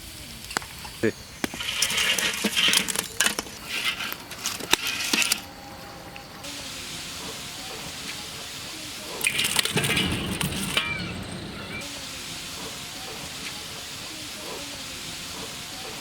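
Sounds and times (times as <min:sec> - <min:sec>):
food deep-frying in oil: 0:00.0 - 0:10.8.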